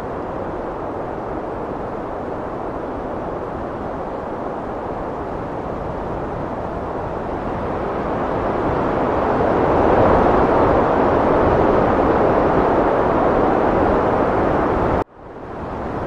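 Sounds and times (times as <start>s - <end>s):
heavy wind rushing: 0.0s - 16.0s.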